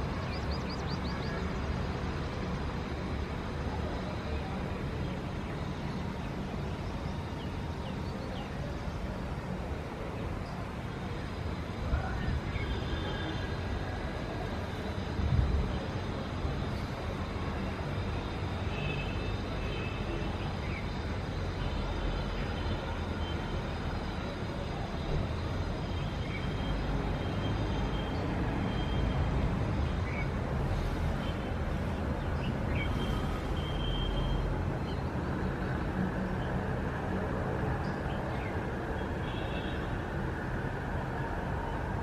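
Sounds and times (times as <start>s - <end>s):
road traffic rumble: 0.0s - 42.0s.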